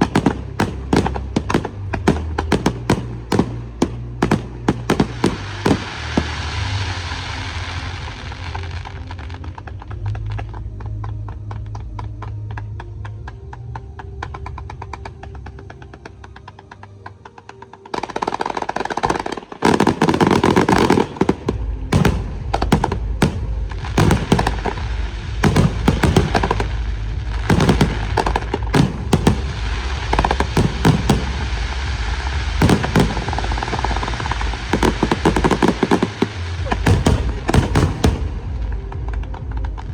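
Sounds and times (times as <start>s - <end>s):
firework bangs: 0.0s - 8.7s, 17.9s - 39.9s
firework crackling: 0.0s - 10.6s, 17.4s - 39.9s.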